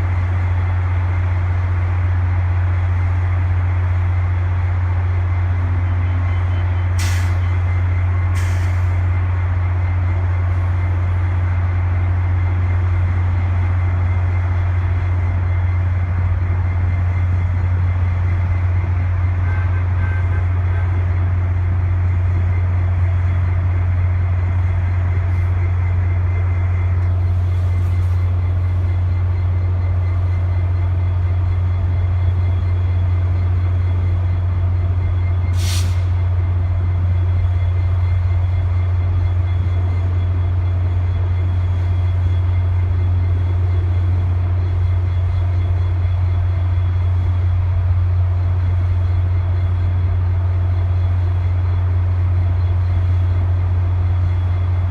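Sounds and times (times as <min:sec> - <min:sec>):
diesel locomotive droning: 0:00.0 - 0:54.9
air brake hiss: 0:07.0 - 0:07.5, 0:08.3 - 0:09.0, 0:35.5 - 0:36.2.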